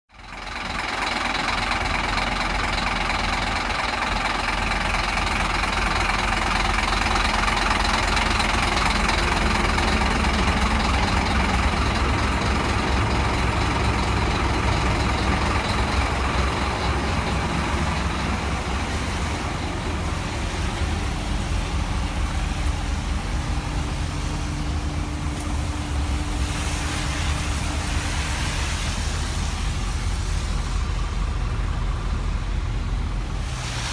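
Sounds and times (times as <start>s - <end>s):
diesel bus engine idling: 0.1s - 33.9s.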